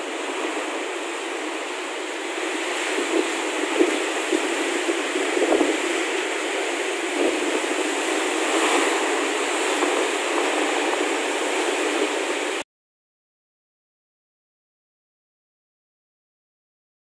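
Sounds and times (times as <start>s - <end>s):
gusting wind: 0.0s - 12.6s
heavy rain pouring: 0.0s - 12.6s.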